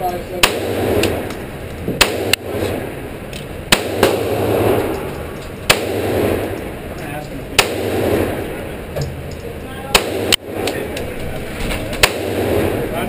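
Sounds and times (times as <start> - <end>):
handgun shots: 5.7 - 6.6, 7.6 - 8.3, 9.9 - 10.8, 12.0 - 12.6.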